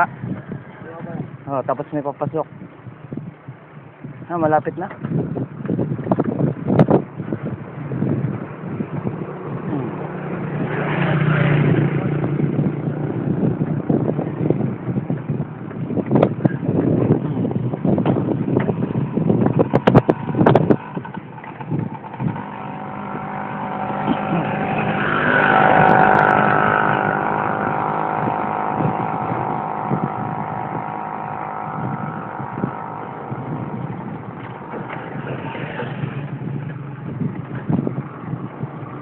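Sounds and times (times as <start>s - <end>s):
vehicle engine passing by: 7.4s - 15.4s, 18.7s - 39.0s.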